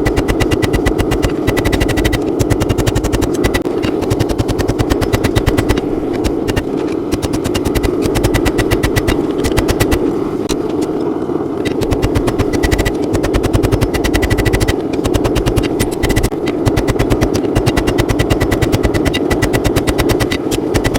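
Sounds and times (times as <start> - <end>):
steady rushing noise: 0.0 - 20.9.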